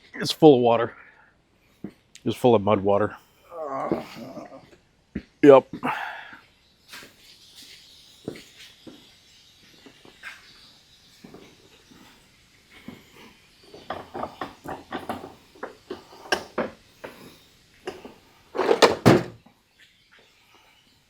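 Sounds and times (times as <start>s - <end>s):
metal clatter: 17.9s - 19.4s
heavy thud: 18.6s - 19.4s.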